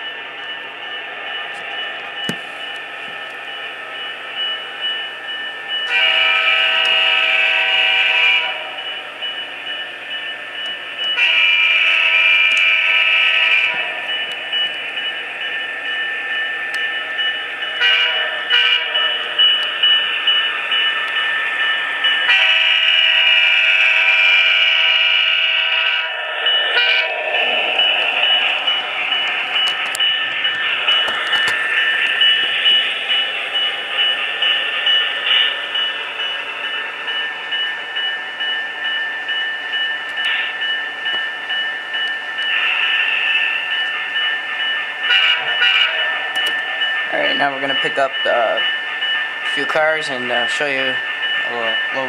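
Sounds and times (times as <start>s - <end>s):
multi-chime air horn blasts: 5.9s - 8.8s, 11.2s - 14.0s, 17.8s - 19.0s, 22.3s - 27.1s, 45.1s - 46.1s.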